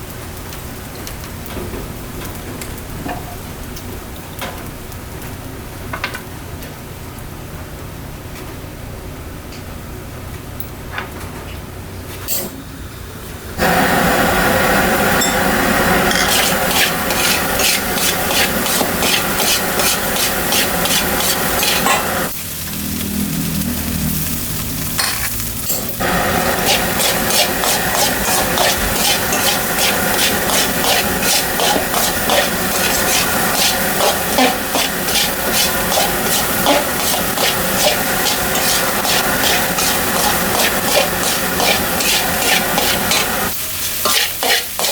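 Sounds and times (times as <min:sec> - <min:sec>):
rice sizzling in a pan: 0:13.6 - 0:44.9
spatula scraping a pan: 0:15.6 - 0:22.3, 0:26.0 - 0:44.9.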